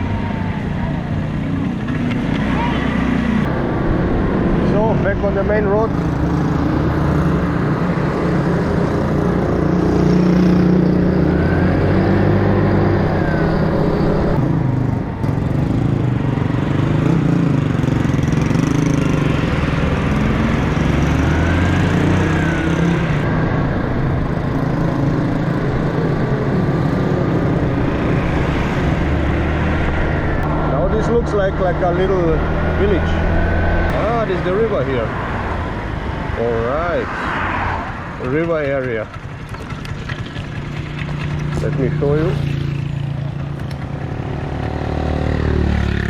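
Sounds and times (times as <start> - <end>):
motorcycle engine running: 37.9 - 46.0.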